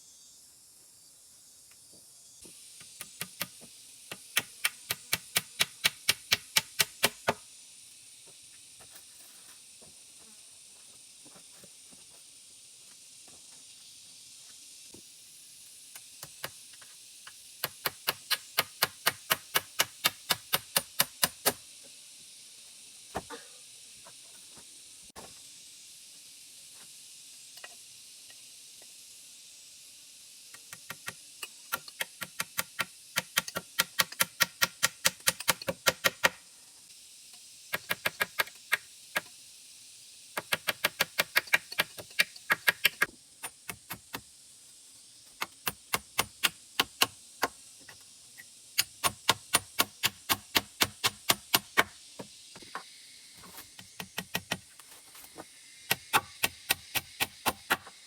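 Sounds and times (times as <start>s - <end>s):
steady high hiss: 0.0s - 58.0s
rapid chopping strikes: 2.8s - 7.4s, 17.6s - 21.6s, 31.7s - 36.4s, 37.8s - 38.8s, 40.4s - 44.2s, 45.4s - 47.6s, 48.8s - 51.9s, 53.6s - 54.7s, 55.9s - 58.0s.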